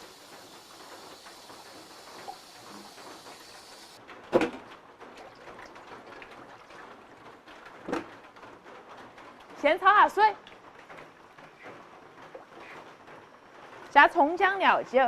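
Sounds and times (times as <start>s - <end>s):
running tap water hissing: 0.0s - 4.0s.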